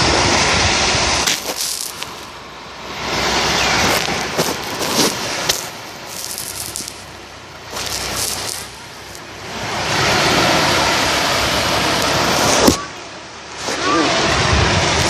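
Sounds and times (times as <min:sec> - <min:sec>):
surf washing onto beach: 0:00.0 - 0:15.0.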